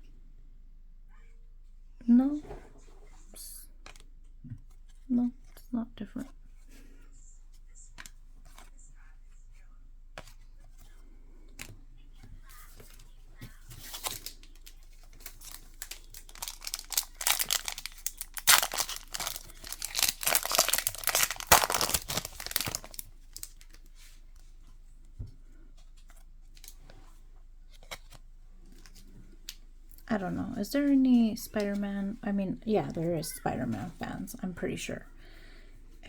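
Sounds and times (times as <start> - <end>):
wrapper tearing and crinkling: 13.8 - 23.8.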